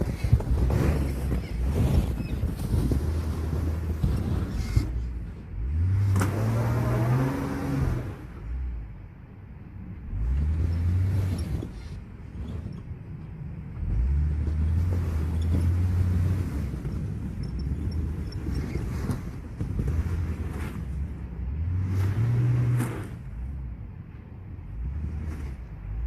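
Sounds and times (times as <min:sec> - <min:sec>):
pickup engine revving: 0:05.6 - 0:08.6.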